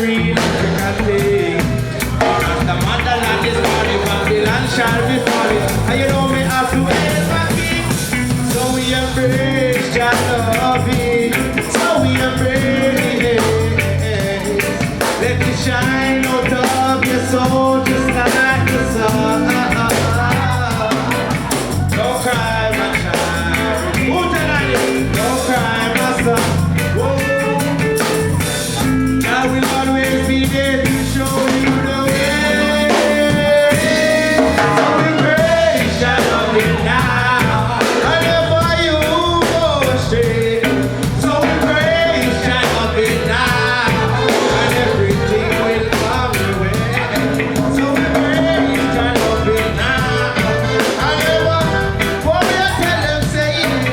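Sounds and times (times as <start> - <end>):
live reggae band: 0.0 - 53.9.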